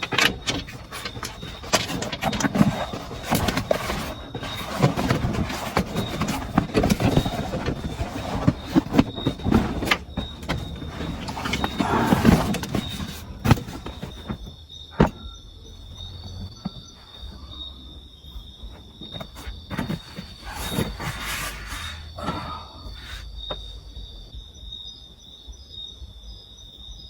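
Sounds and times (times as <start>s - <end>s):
rustling and knocking handling noise: 0.0s - 17.6s, 18.4s - 23.7s
insects chirring: 0.0s - 27.0s.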